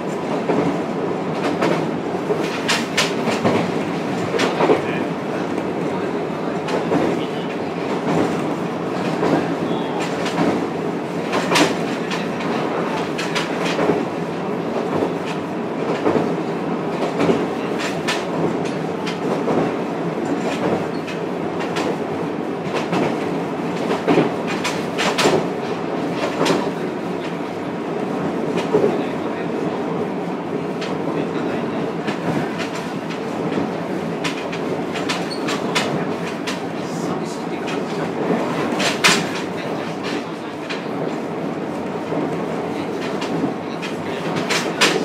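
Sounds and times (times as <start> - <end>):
train running rumble: 0.0 - 45.0
train wheel clicks: 1.4 - 3.7, 34.2 - 36.6.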